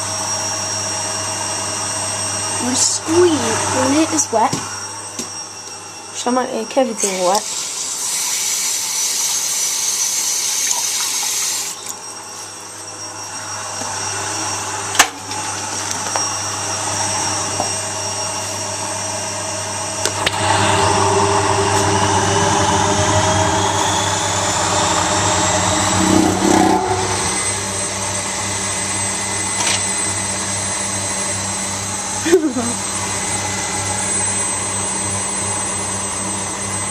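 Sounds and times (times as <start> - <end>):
washing machine motor humming: 19.7 - 34.0
rising drum whine: 20.2 - 30.3.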